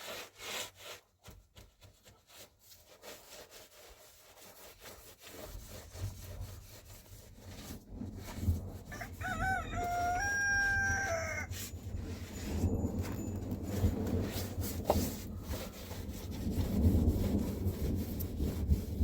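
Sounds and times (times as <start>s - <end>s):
scraping strokes: 0.0s - 19.0s
rooster crowing: 8.9s - 11.5s.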